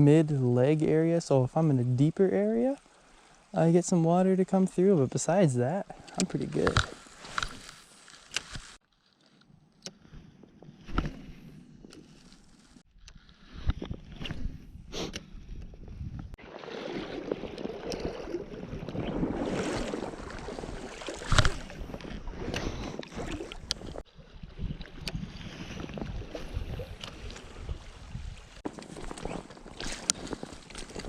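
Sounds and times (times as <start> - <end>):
wind on microphone: 13.5 - 16.4, 17.3 - 31.0
water splashing around waders: 16.4 - 31.0.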